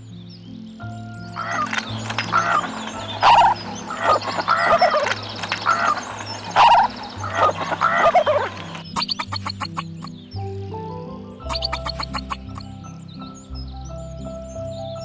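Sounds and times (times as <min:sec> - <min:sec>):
background music with low notes: 0:00.0 - 0:15.0
animal giving rough calls: 0:01.4 - 0:10.1.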